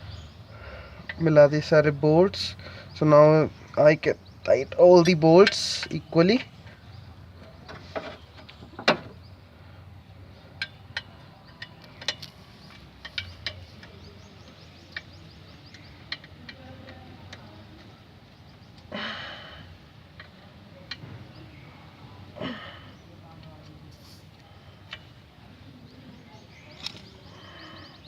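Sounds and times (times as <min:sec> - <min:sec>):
wrench clicking on metal: 0:05.0 - 0:06.0, 0:14.9 - 0:17.4.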